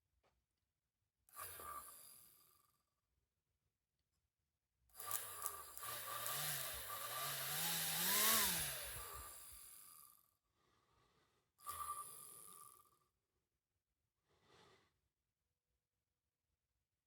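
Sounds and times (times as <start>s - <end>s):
small electric motor running: 5.0s - 10.1s.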